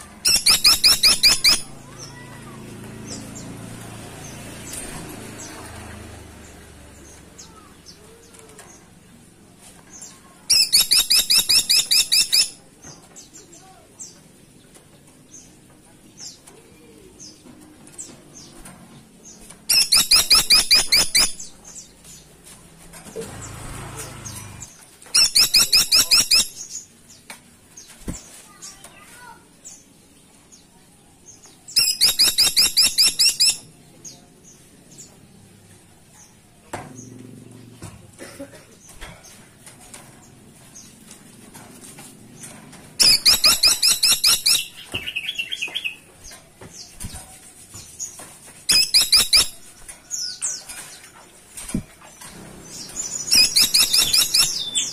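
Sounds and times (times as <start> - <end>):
woodpecker rattling call: 0.3 - 1.7, 19.7 - 21.4, 25.1 - 26.6, 31.8 - 33.6, 43.0 - 45.5, 48.7 - 49.7, 52.7 - 54.9.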